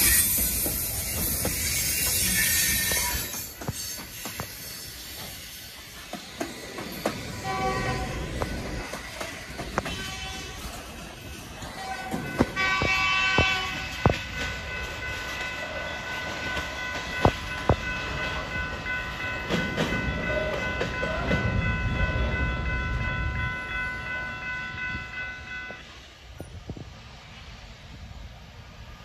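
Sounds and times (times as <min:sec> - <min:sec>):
steady high multi-tone ringing: 0:10.9 - 0:25.9.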